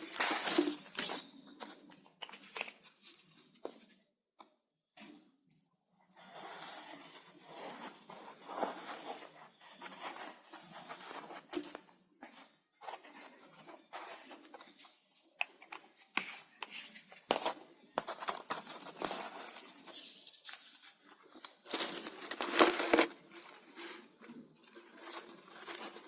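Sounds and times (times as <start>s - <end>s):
plastic rustling and crinkling: 0.0s - 3.6s, 16.1s - 26.0s.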